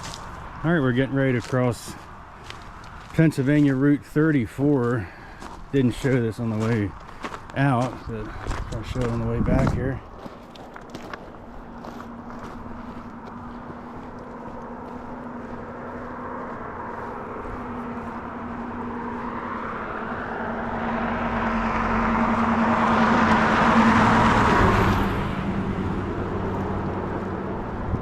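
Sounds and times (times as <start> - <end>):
car passing by: 10.9 - 28.0.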